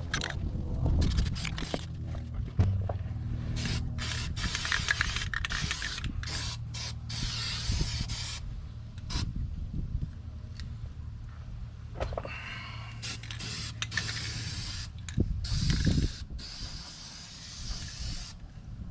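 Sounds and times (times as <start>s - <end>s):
aerosol spray can hissing: 3.6s - 8.4s, 13.0s - 14.9s, 15.5s - 18.4s.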